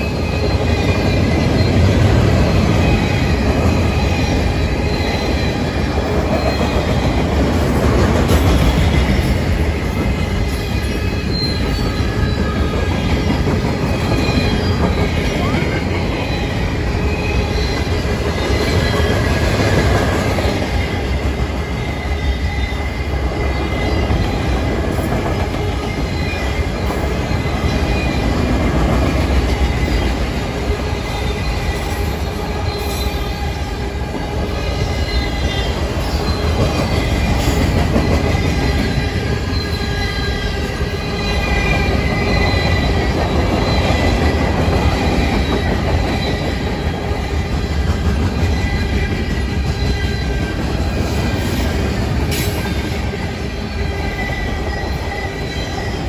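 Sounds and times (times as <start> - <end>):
steel wheels rumbling on rail: 0.0 - 56.0
train cars clanking: 0.0 - 56.0
high-pitched wheel squeal: 10.0 - 13.2, 31.0 - 47.8.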